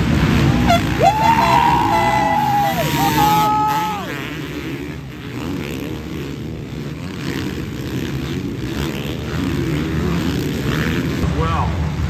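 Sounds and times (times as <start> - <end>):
motocross bikes racing: 0.0 - 12.0.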